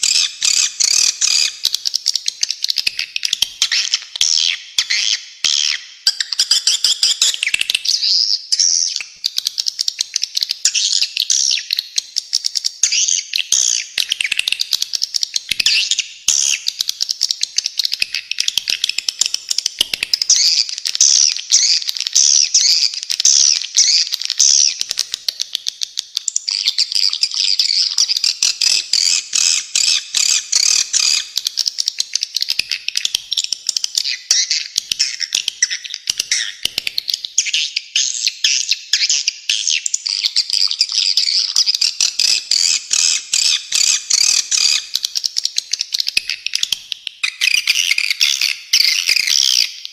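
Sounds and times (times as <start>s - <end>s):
swiftlets chirping and trilling: 15.3s - 38.8s, 39.4s - 49.9s.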